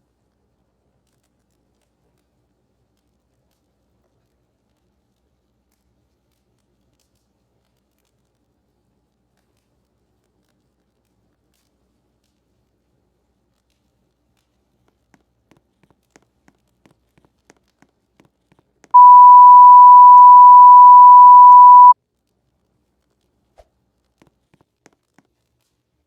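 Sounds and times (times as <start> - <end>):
electronic beep tone: 19.0 - 22.0.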